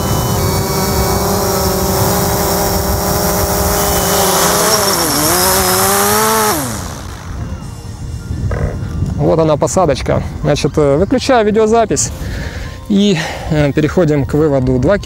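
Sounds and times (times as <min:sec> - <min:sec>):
drone propellers whining: 0:00.0 - 0:09.2.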